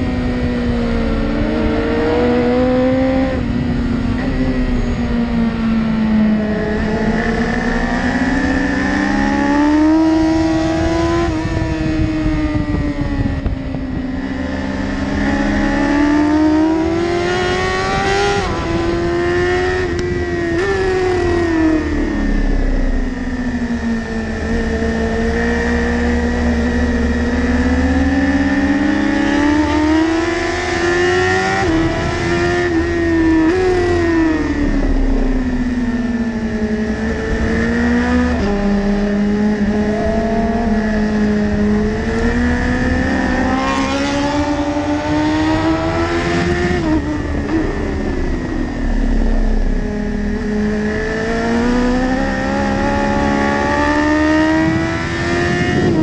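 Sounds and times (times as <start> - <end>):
motorcycle engine at racing revs: 0.0 - 56.0.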